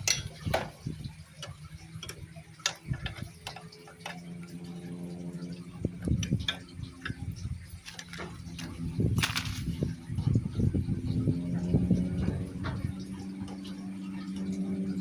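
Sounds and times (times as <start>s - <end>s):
hand tools clicking and tapping: 0.0s - 4.8s, 6.0s - 9.5s
low steady hum: 0.0s - 15.0s.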